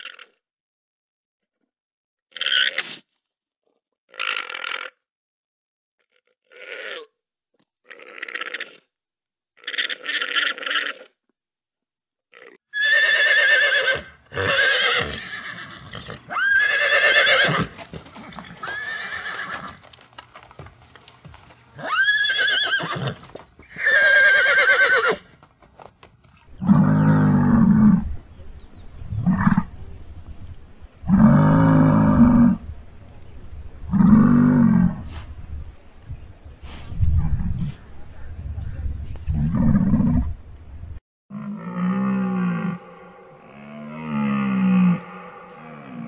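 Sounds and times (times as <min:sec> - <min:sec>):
horse neighing: 0:12.4 - 0:19.8, 0:21.7 - 0:25.3.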